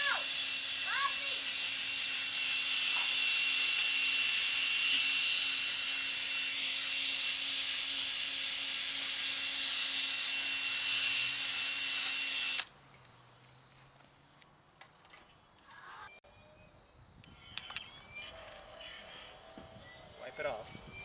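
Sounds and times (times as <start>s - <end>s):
electric drill whine: 0.0s - 12.7s.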